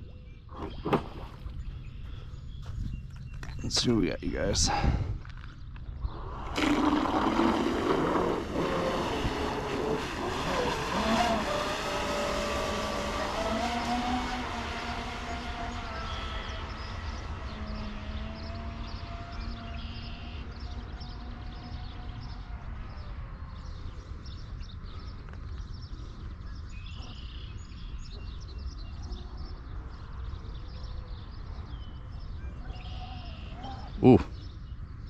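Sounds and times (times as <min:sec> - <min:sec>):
birds chirping: 0:00.0 - 0:35.0
electric motor whine: 0:06.2 - 0:20.0.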